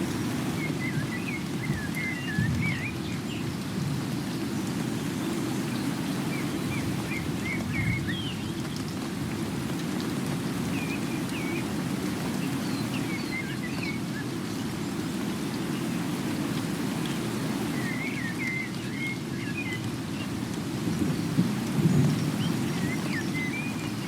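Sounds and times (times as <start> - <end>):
birds chirping: 0.0 - 3.6, 17.0 - 20.4, 21.1 - 24.0
heavy steady rain: 0.0 - 24.0.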